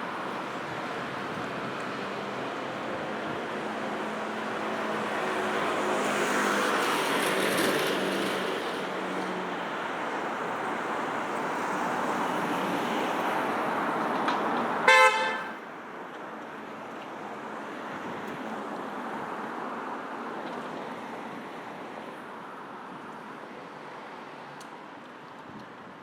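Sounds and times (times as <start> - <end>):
road traffic passing: 0.0 - 25.9
vehicle horn toot: 14.9 - 15.6.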